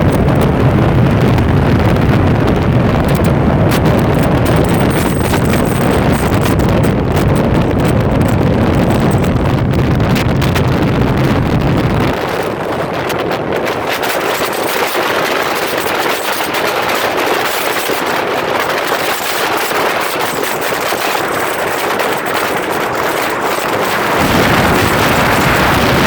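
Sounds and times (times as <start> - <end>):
motorcycle engine crackle: 0.0 - 12.2
wind rushing on microphone: 0.0 - 26.0.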